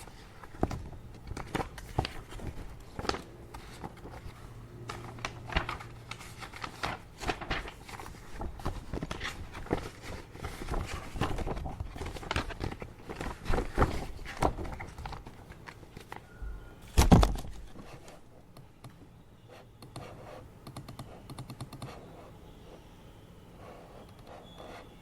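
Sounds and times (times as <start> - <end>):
paper rustling: 0.0 - 16.3
computer keyboard typing: 19.8 - 22.0.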